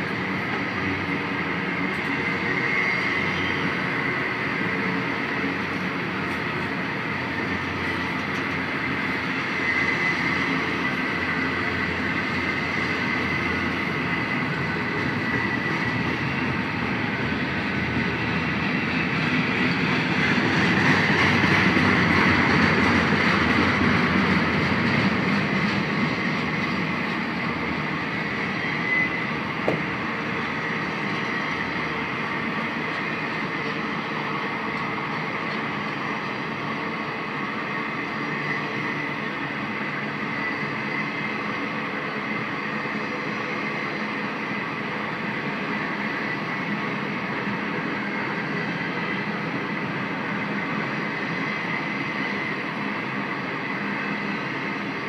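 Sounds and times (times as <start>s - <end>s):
freight train wheels rumbling: 0.0s - 55.0s
high squeal: 2.0s - 5.4s, 25.6s - 34.3s.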